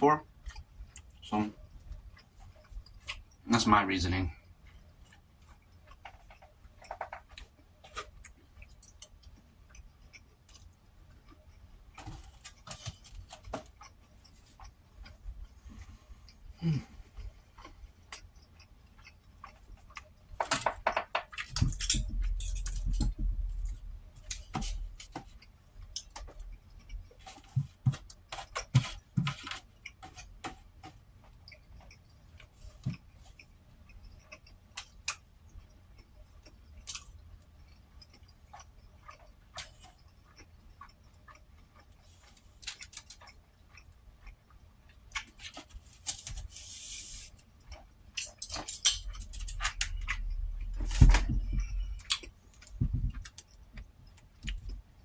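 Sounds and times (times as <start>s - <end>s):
chewing: 0.3s - 3.4s, 4.4s - 20.4s, 21.1s - 48.4s, 49.0s - 55.0s
low rumbling: 49.0s - 53.2s.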